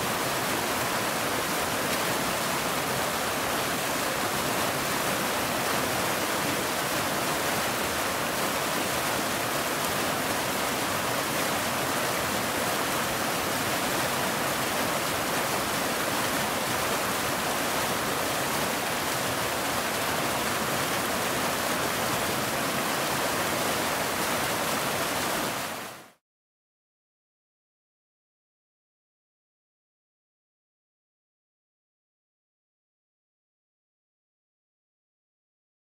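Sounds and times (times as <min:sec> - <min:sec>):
waterfall rushing: 0:00.0 - 0:26.2.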